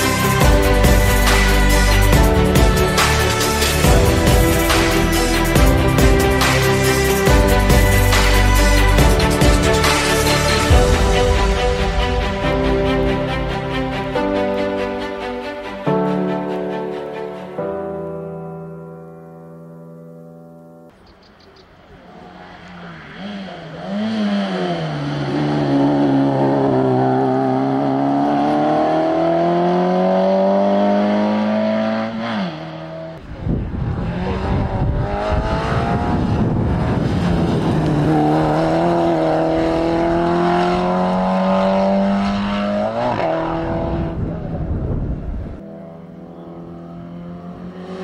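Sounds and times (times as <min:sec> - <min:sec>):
rally car engine revving: 0:21.8 - 0:48.0.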